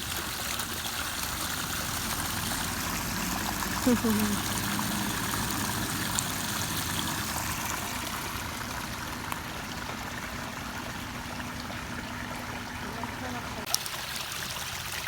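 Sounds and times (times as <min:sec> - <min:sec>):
water rushing through sluice: 0:00.0 - 0:15.0.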